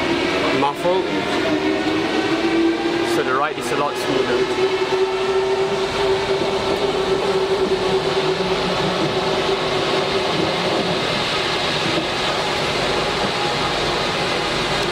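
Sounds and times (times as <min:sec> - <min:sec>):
rumble of train tyres: 0:00.0 - 0:14.9
steady whine: 0:00.0 - 0:14.9.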